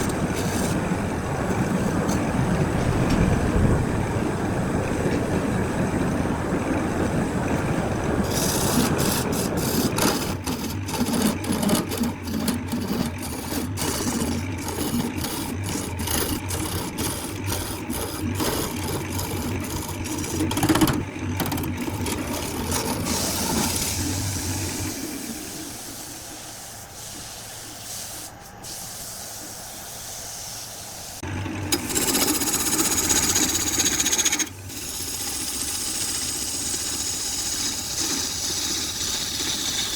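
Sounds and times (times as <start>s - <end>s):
tool scraping on wood: 0.0s - 0.8s, 8.2s - 24.0s, 31.7s - 39.9s.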